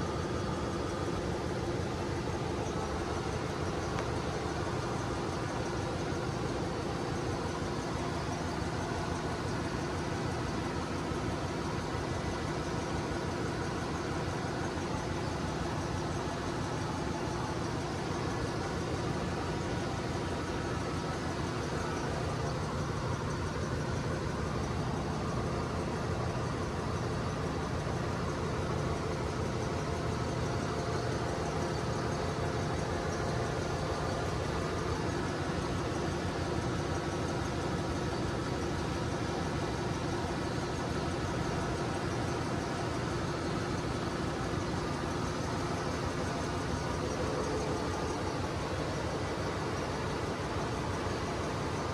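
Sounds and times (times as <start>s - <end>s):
diesel machinery droning: 0.0s - 51.9s.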